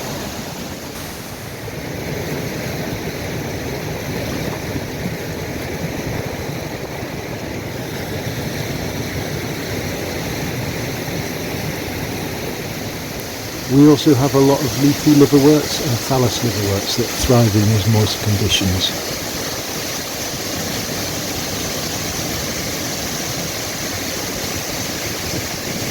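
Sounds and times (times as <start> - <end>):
river and waterfalls roaring: 7.6 - 25.9.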